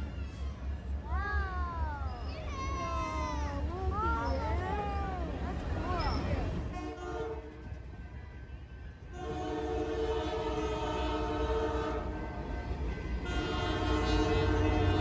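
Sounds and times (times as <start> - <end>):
train rumbling past: 0.0 - 15.0
locomotive air horn: 6.7 - 7.8, 9.0 - 15.0.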